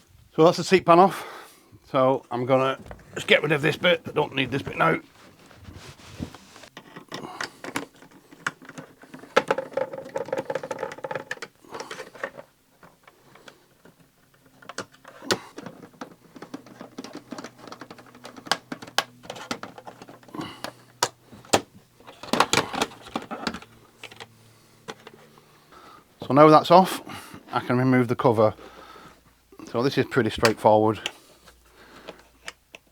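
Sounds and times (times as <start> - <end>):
rustling: 1.8 - 11.1
clicks taps and scraping: 2.2 - 26.0, 30.4 - 32.9.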